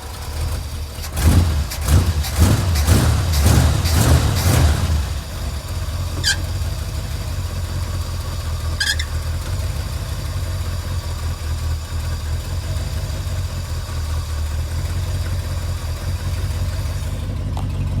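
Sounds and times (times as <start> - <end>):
truck engine idling: 0.0 - 18.0
high squeaks: 6.1 - 6.6, 8.8 - 9.2.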